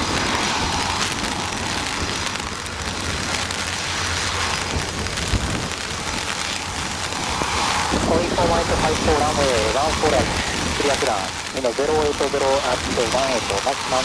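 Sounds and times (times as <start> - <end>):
gusting wind on microphone: 0.0 - 14.0
heavy rain hissing: 0.0 - 14.0.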